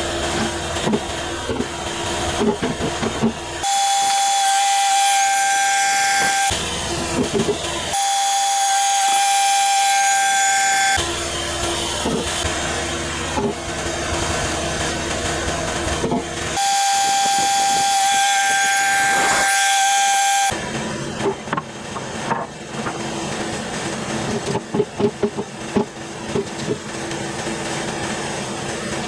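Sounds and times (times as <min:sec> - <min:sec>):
sawmill humming: 0:00.0 - 0:29.0
knocks and clunks: 0:21.2 - 0:23.0, 0:24.2 - 0:26.9.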